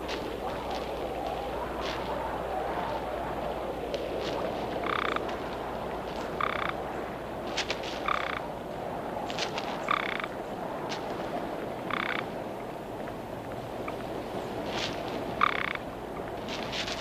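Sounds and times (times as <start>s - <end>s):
frog trilling: 4.8s - 5.2s, 6.4s - 6.8s, 8.0s - 8.4s, 9.9s - 10.3s, 11.9s - 12.3s, 15.4s - 15.8s.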